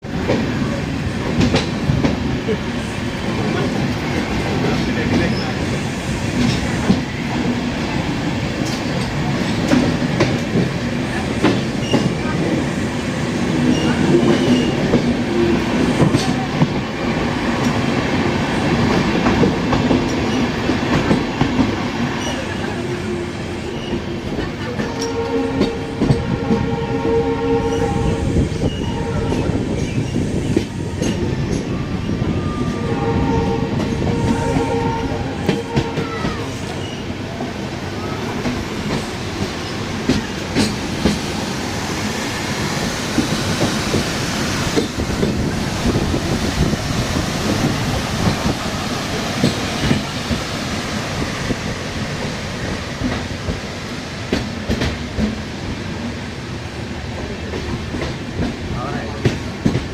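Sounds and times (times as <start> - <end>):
train wheels rumbling on rails: 0.0 - 59.9
train horn blasts: 24.8 - 29.7, 32.4 - 36.3.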